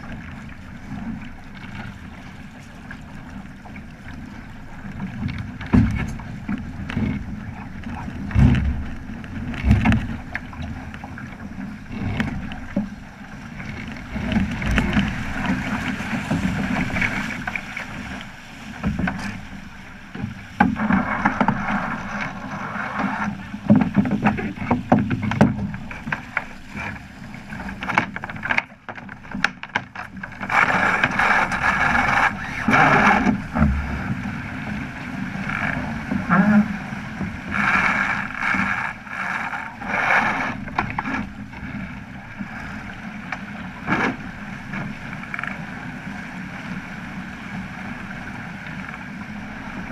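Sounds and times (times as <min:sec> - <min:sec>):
water splashing along hull: 0:00.0 - 0:49.9.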